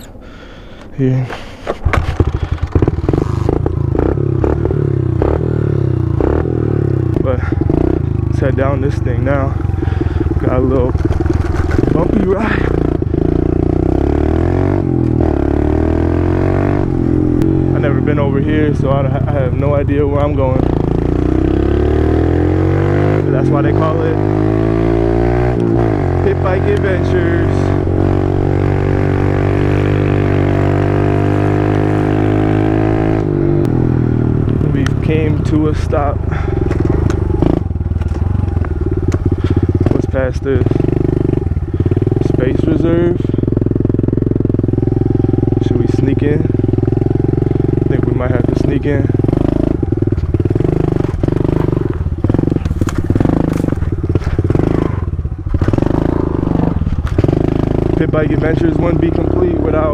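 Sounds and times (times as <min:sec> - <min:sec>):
small motorbike engine running: 0:01.9 - 0:33.8, 0:34.4 - 0:59.9.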